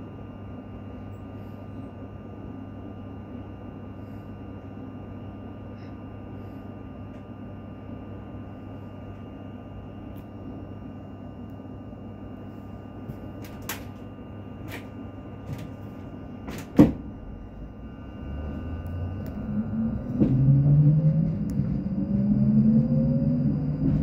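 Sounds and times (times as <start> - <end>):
electric train hum: 0.0 - 24.0
traction motors whining: 17.3 - 24.0.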